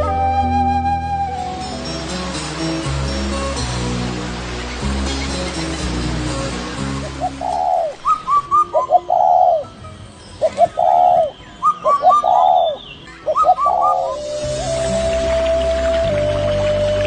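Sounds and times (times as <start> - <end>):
music playing: 0.0 - 11.2, 13.0 - 17.0
bird calling: 7.0 - 9.7, 10.3 - 17.0.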